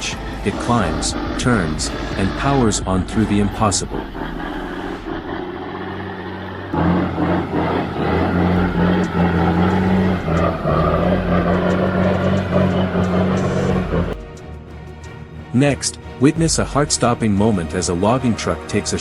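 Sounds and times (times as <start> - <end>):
truck engine working under load: 0.0 - 14.4.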